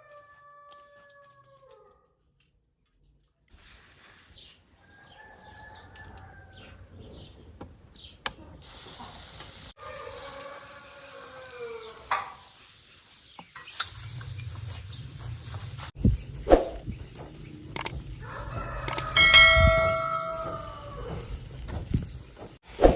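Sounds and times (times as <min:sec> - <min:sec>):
rooster crowing: 0:00.0 - 0:02.0, 0:04.8 - 0:06.8, 0:09.8 - 0:12.0, 0:18.1 - 0:21.4
steady hiss: 0:08.6 - 0:09.8, 0:10.5 - 0:22.9.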